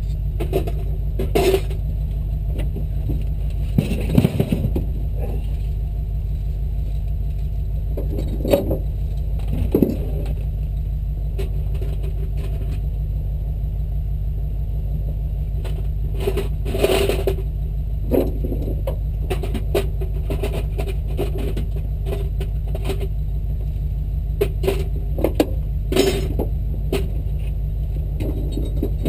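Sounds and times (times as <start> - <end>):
engine running at low revs: 0.0 - 29.0.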